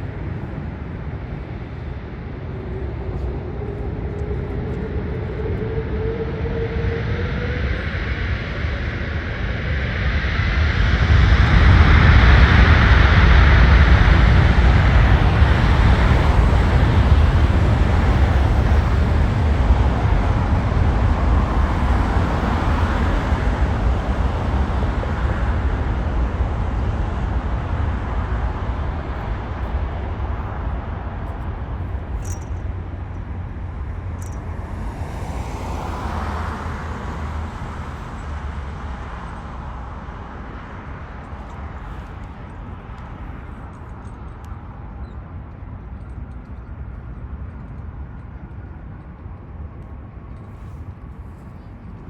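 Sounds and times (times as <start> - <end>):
jet airliner engine rumble: 0.0 - 52.0.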